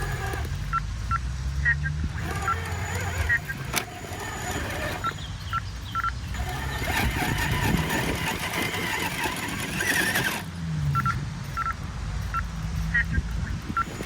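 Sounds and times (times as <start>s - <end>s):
electric motor whine: 0.0s - 0.8s, 2.1s - 5.2s, 6.3s - 10.6s
tyres scrabbling on ground: 0.0s - 14.0s.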